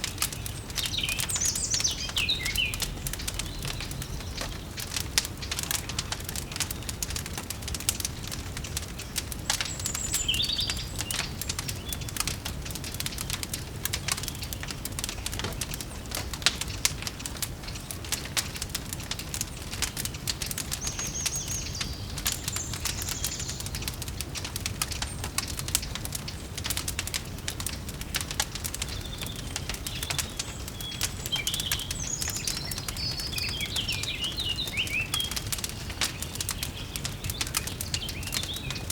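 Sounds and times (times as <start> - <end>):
bird chirping: 0.0 - 6.9, 9.4 - 12.1, 19.5 - 23.9, 28.8 - 38.9
wood fire crackling: 0.0 - 38.9.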